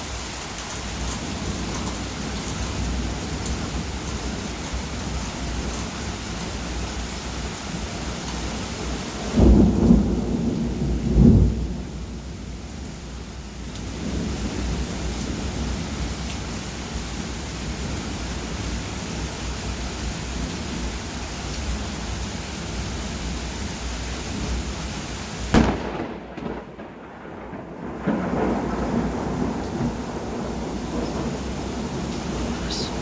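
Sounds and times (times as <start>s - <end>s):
steady rain: 0.0s - 33.0s
low rumbling thunder: 8.5s - 19.1s, 25.5s - 33.0s
sharp thunder crack: 25.5s - 33.0s.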